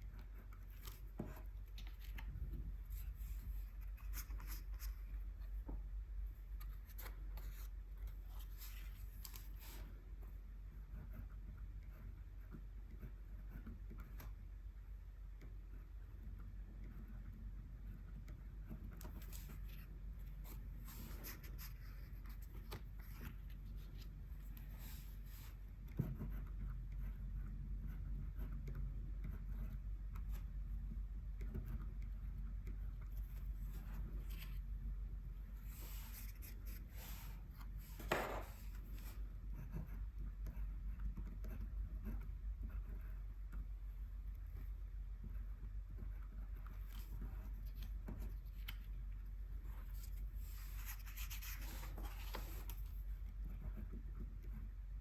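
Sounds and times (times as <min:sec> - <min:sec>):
scratchy strokes on paper: 0:35.4 - 0:40.0, 0:49.5 - 0:54.7.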